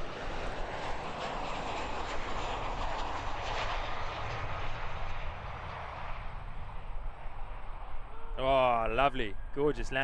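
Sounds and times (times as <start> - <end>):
jet engines rushing: 0.0 - 10.0.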